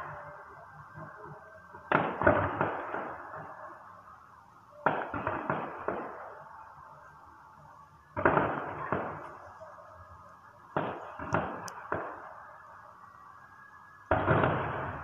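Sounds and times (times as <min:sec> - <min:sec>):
firework shells booming: 0:01.8 - 0:03.6, 0:04.8 - 0:06.4, 0:08.2 - 0:09.4, 0:10.7 - 0:12.3, 0:14.1 - 0:15.0.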